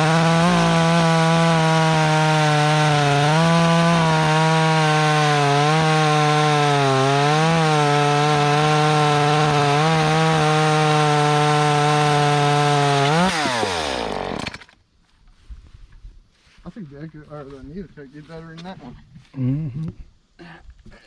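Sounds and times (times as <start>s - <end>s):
chainsaw cutting log: 0.0s - 14.8s.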